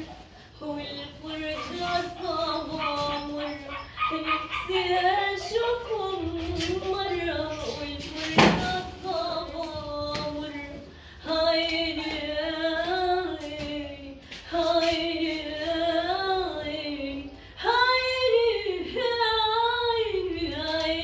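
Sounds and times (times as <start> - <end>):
singer breathing: 10.8 - 11.3.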